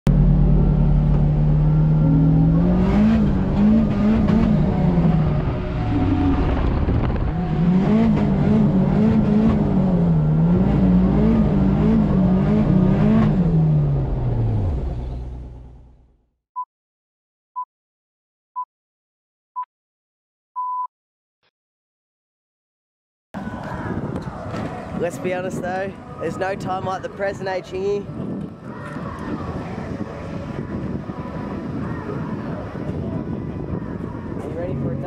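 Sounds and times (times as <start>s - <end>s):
car engine revving: 0.1s - 16.1s.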